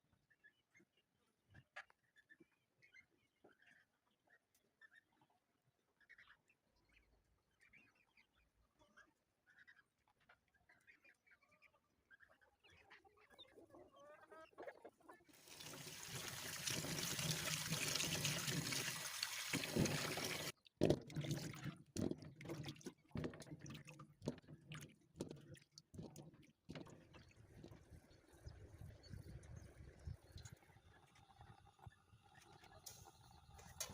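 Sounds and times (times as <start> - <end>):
faint chicken clucking: 0.0 - 15.4
water running: 15.4 - 23.9.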